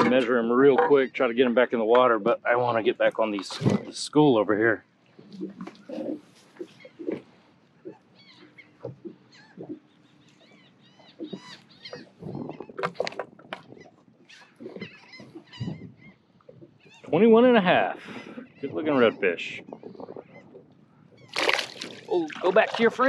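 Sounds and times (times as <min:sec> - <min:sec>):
flock of birds calling: 0:07.9 - 0:13.1.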